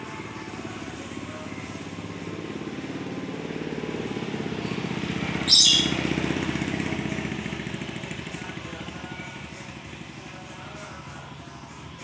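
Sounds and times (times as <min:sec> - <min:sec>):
pulsing engine rumble: 0:00.0 - 0:11.6
bird harsh high-pitched screech: 0:05.4 - 0:06.1.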